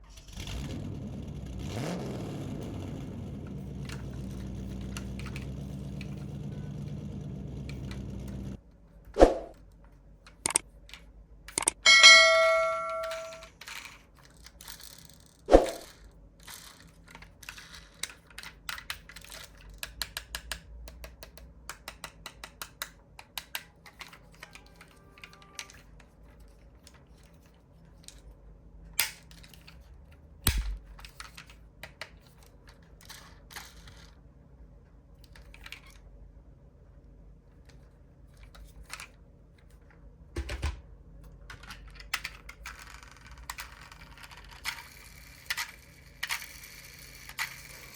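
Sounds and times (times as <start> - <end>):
metallic ding: 11.7 - 13.4.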